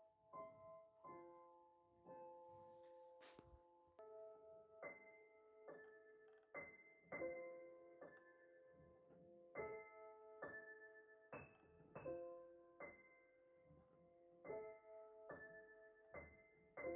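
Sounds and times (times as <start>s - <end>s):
slow piano chords: 0.0s - 16.9s.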